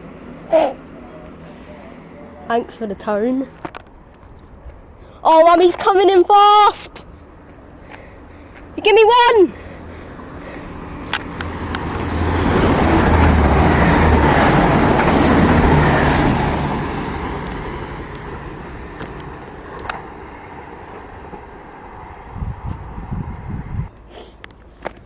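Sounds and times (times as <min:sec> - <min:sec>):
train passing at speed: 0:09.0 - 0:23.9.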